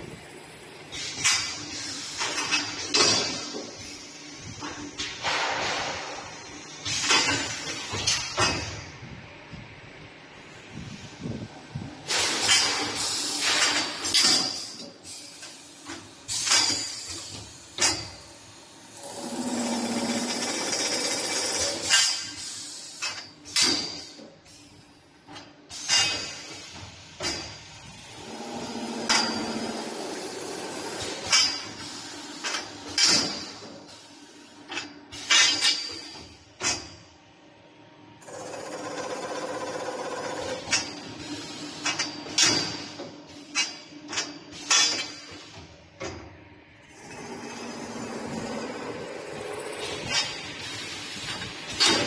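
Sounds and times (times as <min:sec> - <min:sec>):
machine clunks with hiss: 0:00.8 - 0:09.6, 0:12.0 - 0:37.0, 0:38.3 - 0:46.3, 0:46.9 - 0:52.0
machine running with low hum: 0:17.0 - 0:21.9, 0:36.4 - 0:52.0.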